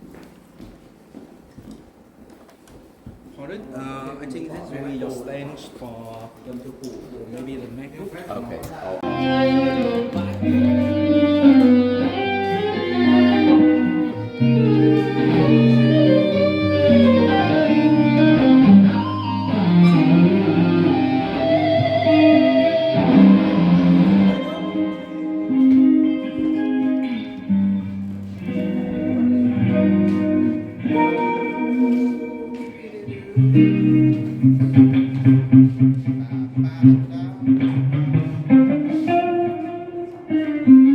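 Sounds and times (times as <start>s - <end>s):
backing track with bass notes: 9.0s - 40.9s
electric guitar melody: 9.0s - 40.9s.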